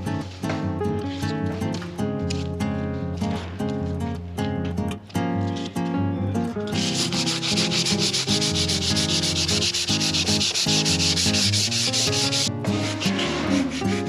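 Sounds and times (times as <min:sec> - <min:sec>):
sandpaper rubbing a surface: 0:06.7 - 0:14.0.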